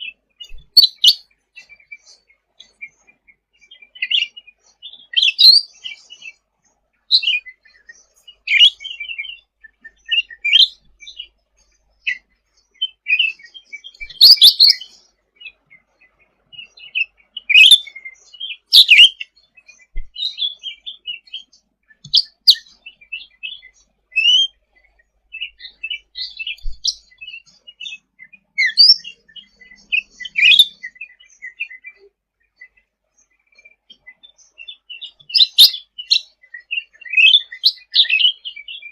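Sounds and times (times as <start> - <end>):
songbird chirping and trilling: 0.0 - 38.9.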